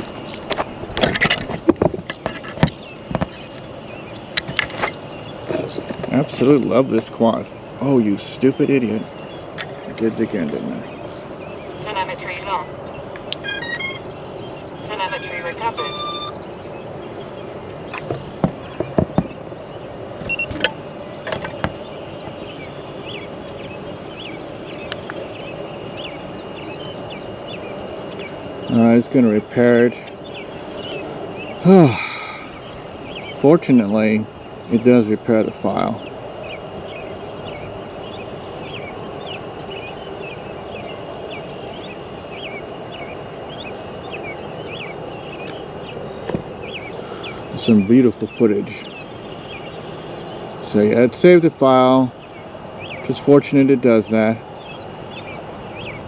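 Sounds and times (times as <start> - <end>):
outdoor background noise: 0.0 - 56.0
steady background hiss: 0.0 - 56.0
bird chirps: 8.4 - 29.0, 35.7 - 56.0
bird chirping short notes: 13.4 - 14.1, 14.9 - 16.4
faint high insect-like tone: 13.4 - 16.6.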